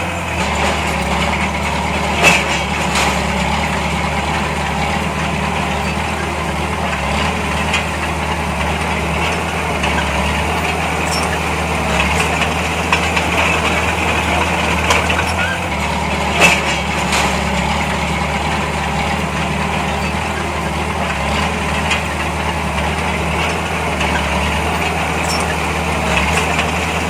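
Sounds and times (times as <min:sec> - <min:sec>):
heavy diesel engine running: 0:00.0 - 0:27.0
sharp knocks: 0:00.4 - 0:06.4, 0:10.5 - 0:20.4.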